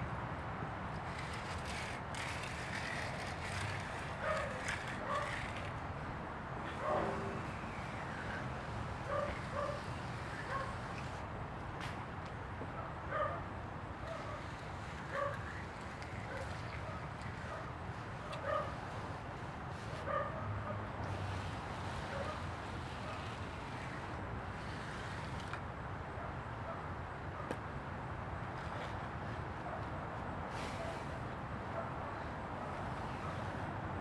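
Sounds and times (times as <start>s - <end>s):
steady background noise: 0.0s - 34.0s
dog barking: 13.1s - 13.4s, 18.4s - 18.7s, 20.1s - 20.5s.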